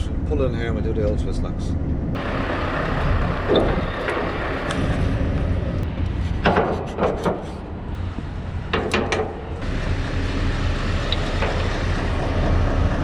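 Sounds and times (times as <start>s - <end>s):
truck engine idling: 2.2s - 6.2s, 7.6s - 13.0s
metallic knocks and clanks: 6.4s - 7.6s, 8.7s - 9.6s.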